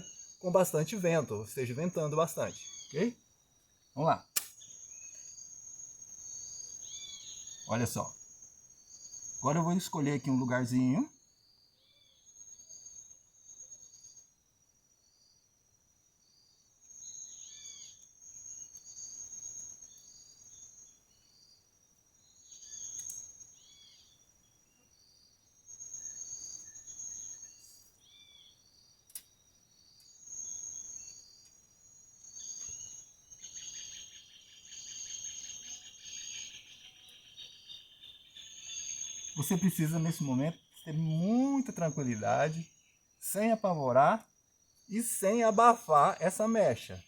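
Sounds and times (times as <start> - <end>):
bird chirps: 0.0 - 8.1, 17.0 - 18.1, 30.0 - 47.0
high insect buzz: 0.0 - 47.0
sharp click: 4.3 - 4.6.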